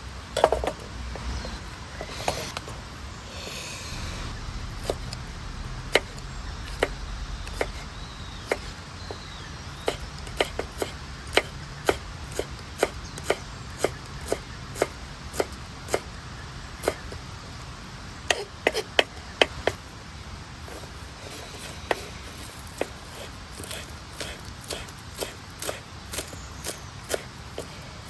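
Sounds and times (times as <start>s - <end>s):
knife chopping on cutting board: 22.7s - 27.8s.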